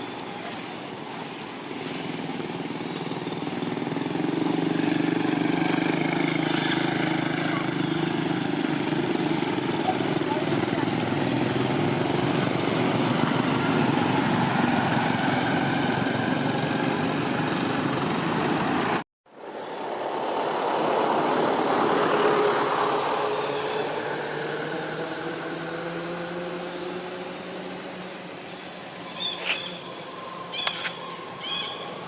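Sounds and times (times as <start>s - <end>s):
motor engine running: 2.5s - 19.0s.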